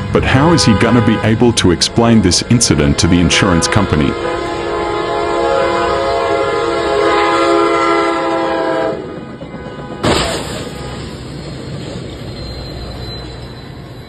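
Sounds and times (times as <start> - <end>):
multi-tone horn blast: 0.2 - 11.2
loud crash bang: 10.0 - 10.8.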